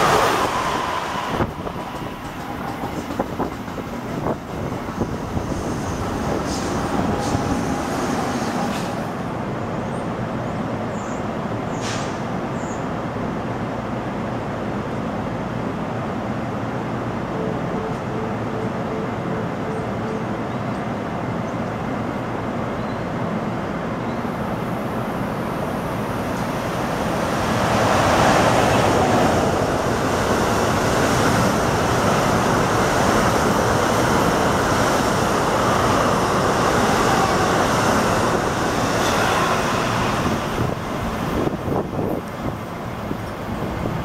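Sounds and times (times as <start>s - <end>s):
rushing noise of passing coaches: 0.0s - 9.9s, 24.2s - 44.0s
train wheels rumbling on rails: 0.0s - 10.7s, 24.5s - 44.0s.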